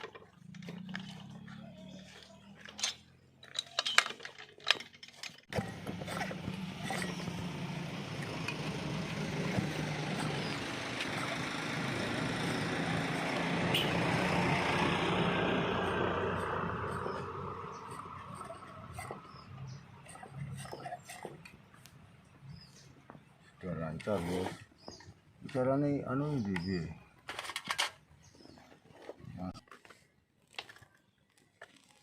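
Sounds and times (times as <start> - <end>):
chainsaw engine running: 5.5 - 19.4.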